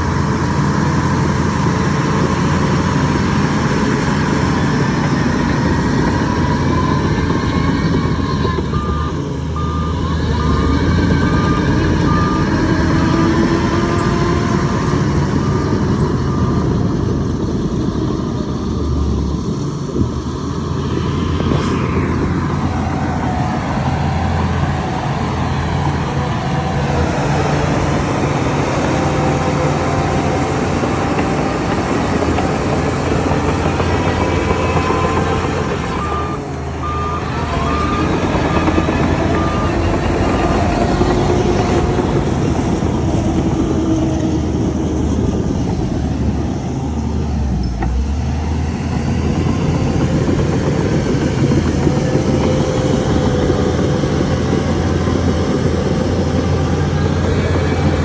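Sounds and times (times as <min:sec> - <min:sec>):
heavy diesel machinery under load: 0:00.0 - 0:58.0
reversing alarm beeping: 0:06.0 - 0:14.1, 0:15.8 - 0:17.0, 0:32.3 - 0:41.8.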